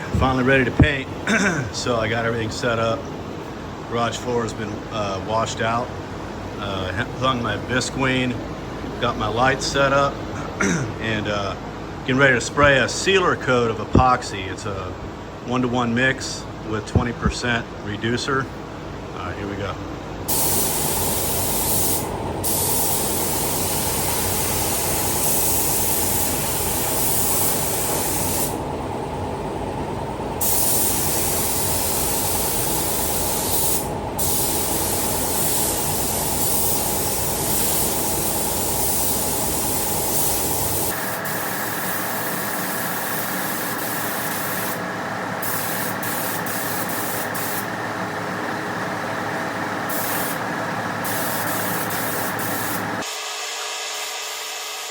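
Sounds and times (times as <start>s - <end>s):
steady low hum: 0.0s - 53.1s
paint spray gun hissing: 20.3s - 28.6s, 30.4s - 47.7s, 49.9s - 53.1s.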